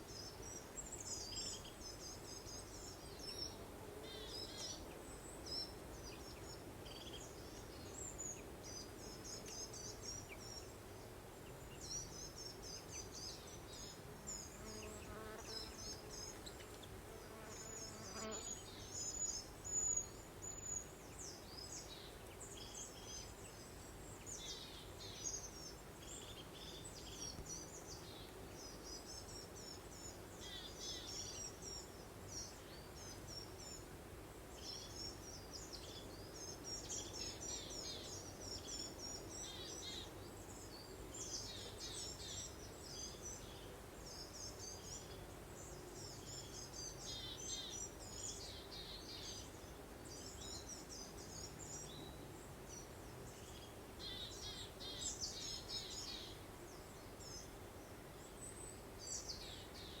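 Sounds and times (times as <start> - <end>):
songbirds chirping: 0.0 - 60.0
soft breeze: 18.5 - 60.0.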